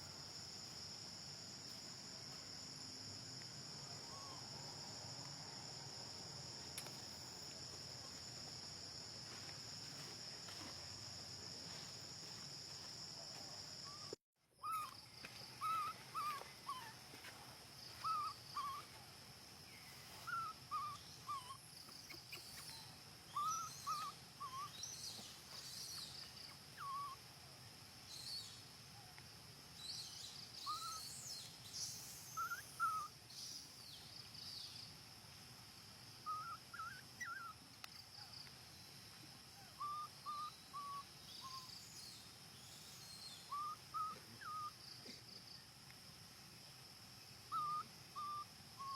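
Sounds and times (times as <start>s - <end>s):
insects trilling: 0.0s - 48.9s
short chirping animal calls: 15.6s - 16.9s, 18.0s - 18.8s, 20.2s - 24.9s, 43.0s - 44.8s, 47.5s - 48.9s.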